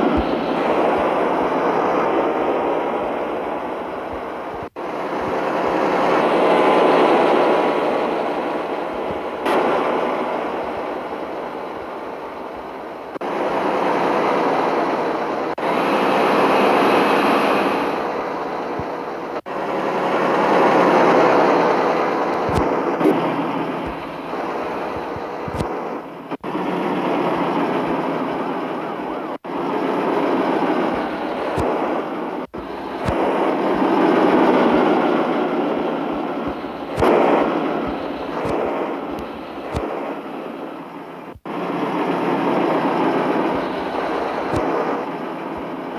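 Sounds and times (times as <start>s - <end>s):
truck engine and road noise: 10.4s - 40.0s.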